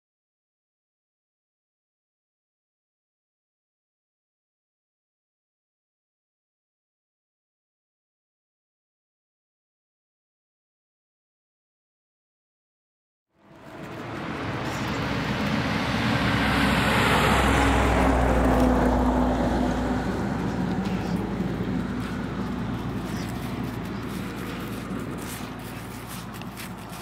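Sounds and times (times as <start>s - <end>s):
vehicle passing by: 13.4s - 27.0s.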